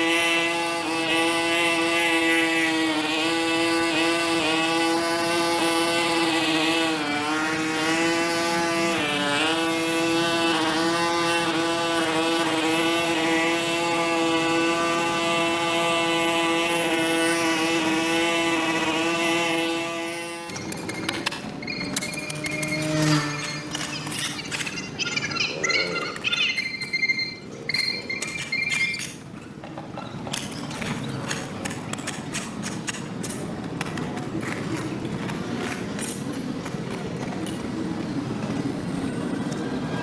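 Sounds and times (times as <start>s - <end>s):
small engine running at high speed: 0.0s - 27.5s.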